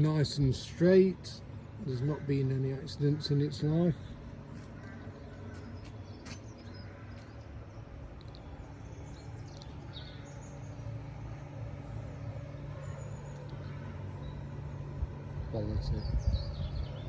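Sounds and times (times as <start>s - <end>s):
steady low hum: 0.0s - 17.0s
bird chirps: 4.5s - 17.0s.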